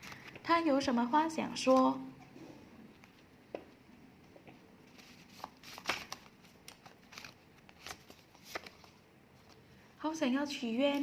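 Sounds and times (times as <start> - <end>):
paper cards rustling: 0.0 - 0.4, 4.9 - 9.6.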